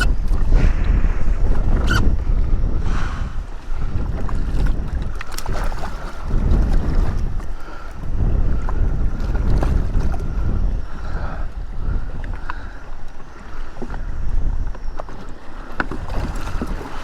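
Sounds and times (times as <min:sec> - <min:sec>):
wind buffeting microphone: 0:00.0 - 0:17.0
water sloshing: 0:03.3 - 0:10.4.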